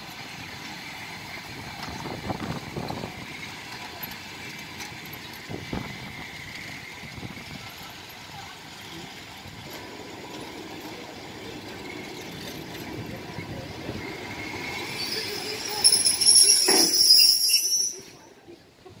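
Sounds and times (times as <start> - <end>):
train rumbling on track: 0.0 - 19.0
high-pitched metallic squeal: 14.2 - 18.3.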